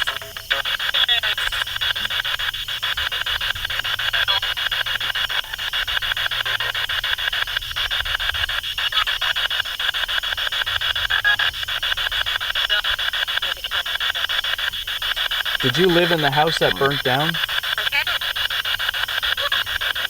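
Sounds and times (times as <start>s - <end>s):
radio static hiss: 0.0s - 20.0s
rapid even clicks: 11.8s - 19.3s.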